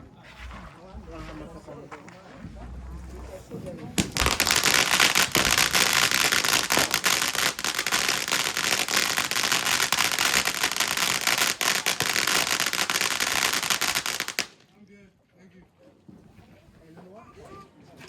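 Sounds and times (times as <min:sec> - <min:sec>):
fireworks crackling: 0:03.9 - 0:14.7.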